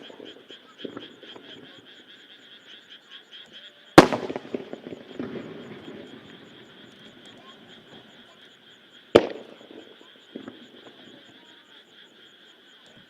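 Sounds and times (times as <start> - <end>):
frogs chorus: 0.0 - 13.0
firework shell bang: 4.0 - 5.4.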